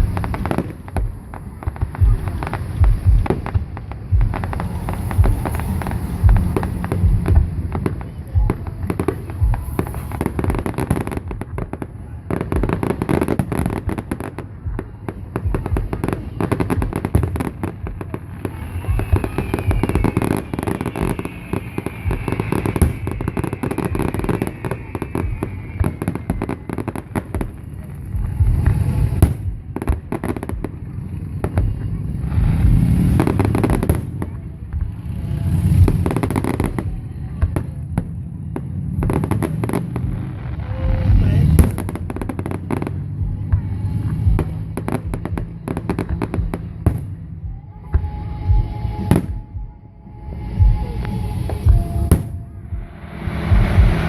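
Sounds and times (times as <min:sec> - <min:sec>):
firework bangs and crackles: 0:00.0 - 0:54.0
falling firework whistle: 0:16.5 - 0:27.6, 0:47.8 - 0:54.0.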